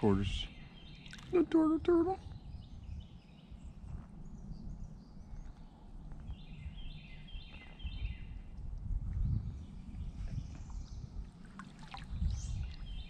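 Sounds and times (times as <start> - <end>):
songbird chirping: 0.0 - 13.0
paddled boat and water rumble: 9.0 - 13.0.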